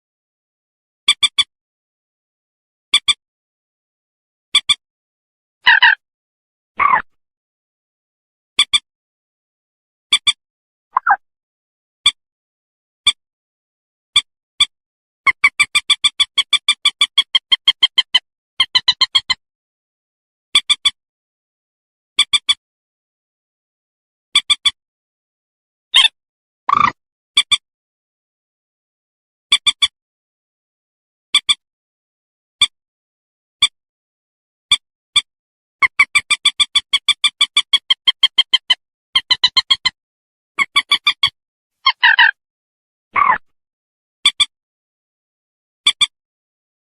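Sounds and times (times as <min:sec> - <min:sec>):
moorhen calling: 0:41.9 - 0:42.4.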